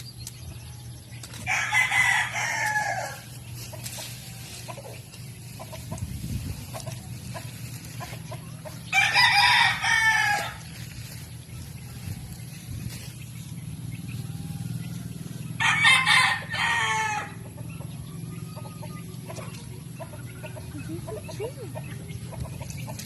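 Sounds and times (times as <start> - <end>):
rooster crowing: 1.5 - 3.3, 8.9 - 10.7, 15.6 - 17.4.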